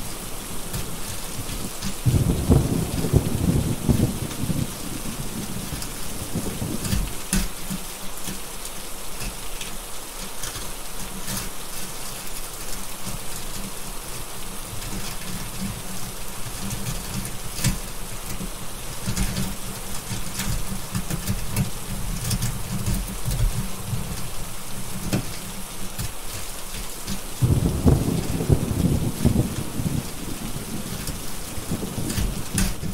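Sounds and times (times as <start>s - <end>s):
heavy rain hissing: 0.0s - 32.9s
wood fire crackling: 0.0s - 32.9s
rolling thunder: 2.0s - 7.0s, 27.4s - 32.9s.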